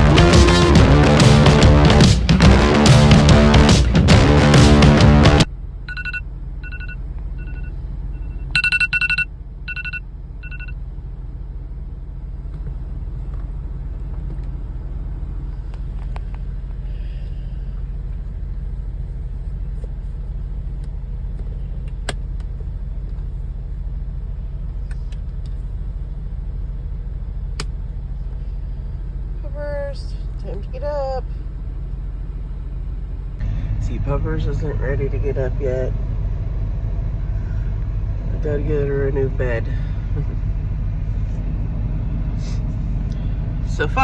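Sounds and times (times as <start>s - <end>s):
diesel truck engine idling: 0.0s - 44.0s
electronic beeper short beeps: 5.9s - 10.8s.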